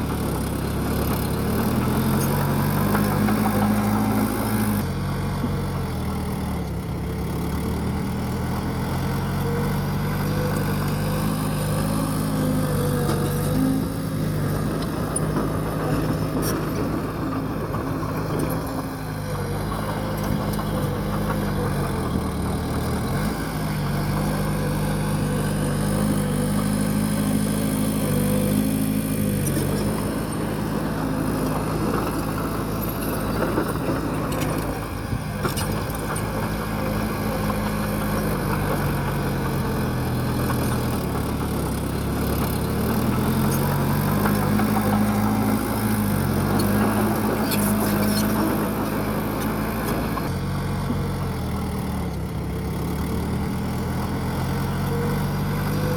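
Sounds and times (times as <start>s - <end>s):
bulldozer diesel engine under load: 0.0s - 55.9s.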